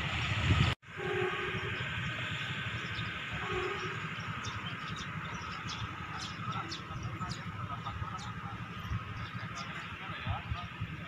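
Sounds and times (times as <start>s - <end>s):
small birds chirping: 1.8s - 10.4s.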